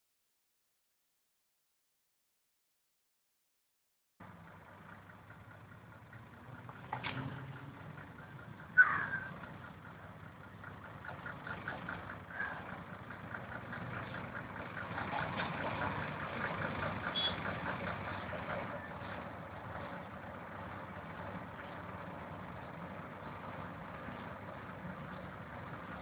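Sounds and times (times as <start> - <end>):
vehicle engine idling: 4.2 - 26.0.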